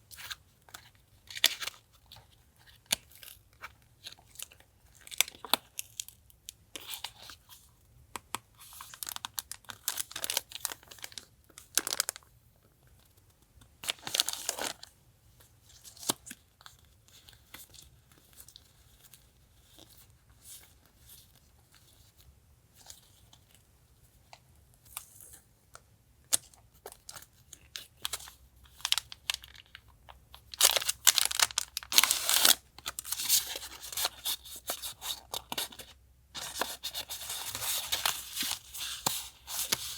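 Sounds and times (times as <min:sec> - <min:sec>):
packaging rustling and tearing: 0:08.8 - 0:12.2, 0:13.9 - 0:14.9, 0:30.4 - 0:39.9.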